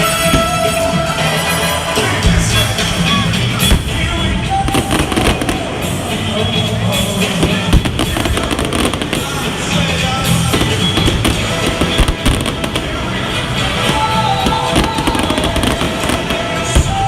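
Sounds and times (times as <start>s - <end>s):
fireworks bangs and crackles: 0.0s - 17.0s
music playing: 0.0s - 17.0s.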